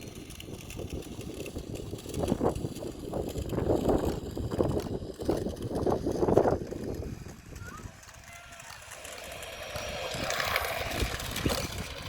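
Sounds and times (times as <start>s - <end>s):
wind on microphone: 0.0s - 8.6s, 9.6s - 12.0s
toy car motor rumbling: 0.0s - 12.0s.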